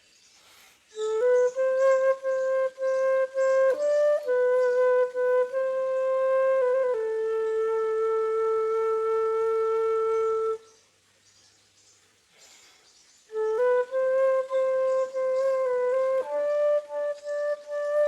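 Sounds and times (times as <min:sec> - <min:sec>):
flute playing slow melody: 0:00.9 - 0:10.9, 0:13.3 - 0:18.0.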